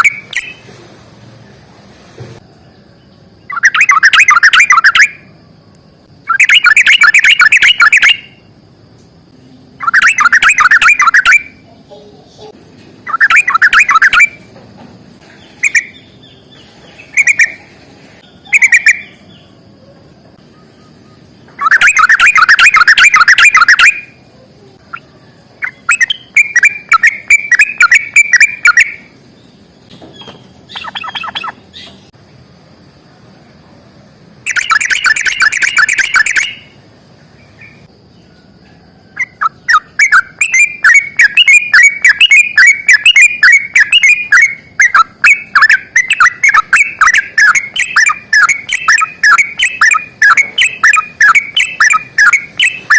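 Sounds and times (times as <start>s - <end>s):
bird rolling chatter: 13.0s - 19.2s, 21.5s - 24.0s, 25.6s - 29.1s, 29.8s - 32.1s, 34.4s - 36.7s, 39.2s - 52.9s.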